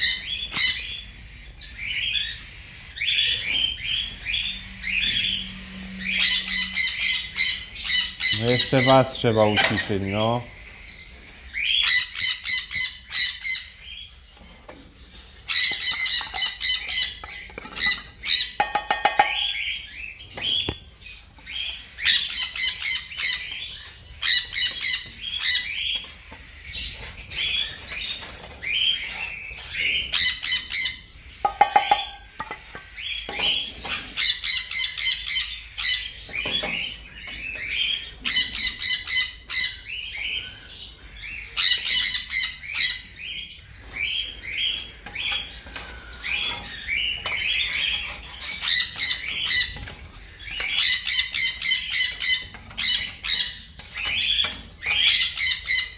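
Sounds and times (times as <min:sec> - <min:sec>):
parrots squawking: 0:00.0 - 0:14.0, 0:15.5 - 0:28.0, 0:28.7 - 0:36.1.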